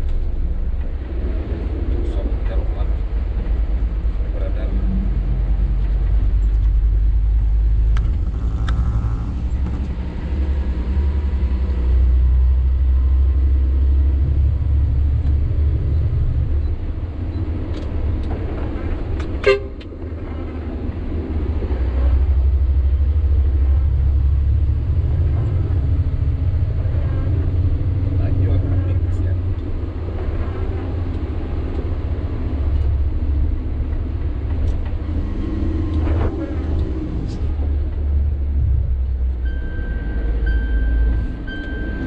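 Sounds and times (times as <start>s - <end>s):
truck diesel engine droning: 0.0s - 42.0s.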